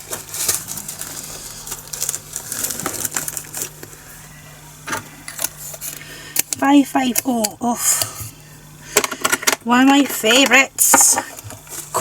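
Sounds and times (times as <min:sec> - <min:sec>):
plastic bag crinkling: 0:00.0 - 0:04.0.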